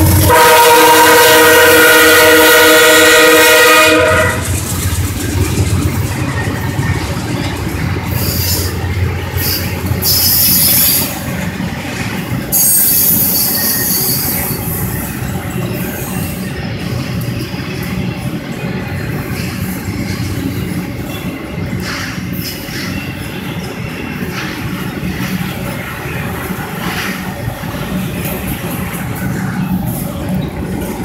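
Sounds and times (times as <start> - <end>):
locomotive air horn chord: 0.0 - 4.6
freight cars rumbling on rails: 0.0 - 31.0
high-pitched wheel squeals: 9.4 - 11.2, 12.5 - 15.0.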